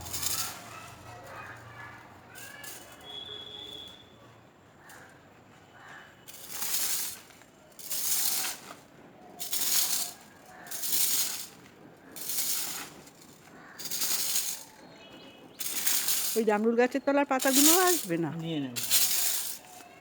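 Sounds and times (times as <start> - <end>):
rake rustling through dry leaves: 0.0 - 1.4, 6.3 - 20.0.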